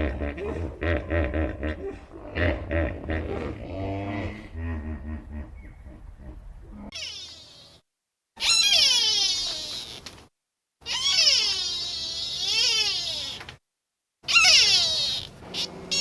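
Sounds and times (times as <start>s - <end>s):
wailing cat-like animal calls: 6.8s - 7.8s, 8.4s - 10.1s, 10.8s - 13.5s, 14.2s - 16.0s.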